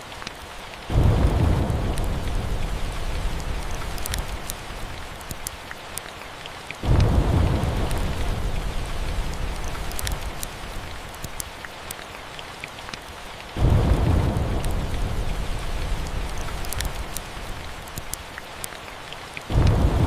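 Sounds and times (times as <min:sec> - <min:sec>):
steady rain: 0:00.0 - 0:20.0
sharp crackles: 0:00.2 - 0:06.2, 0:06.8 - 0:12.2, 0:12.8 - 0:18.8
low thunder rumbles: 0:00.9 - 0:05.5, 0:06.8 - 0:11.3, 0:13.6 - 0:18.0, 0:19.5 - 0:20.0.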